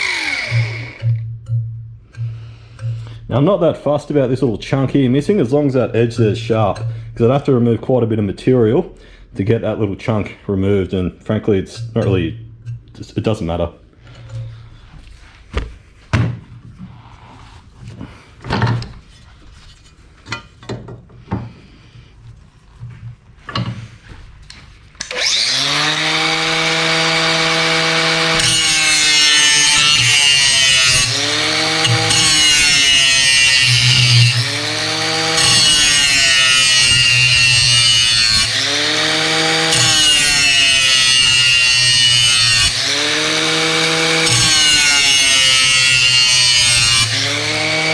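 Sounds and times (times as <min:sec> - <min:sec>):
angle grinder grinding steel: 0:00.0 - 0:01.3, 0:25.0 - 0:47.9.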